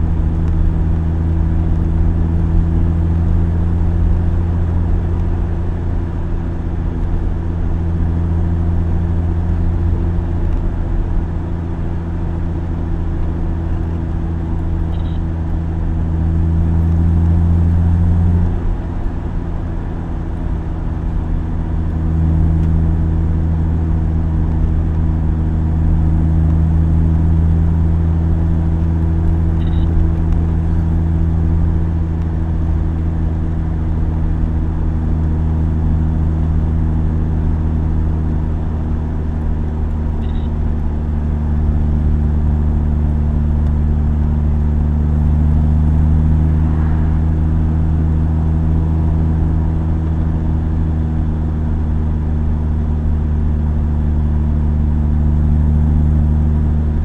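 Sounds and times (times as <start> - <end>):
car engine droning: 0.0 - 57.0
road noise: 0.0 - 57.0.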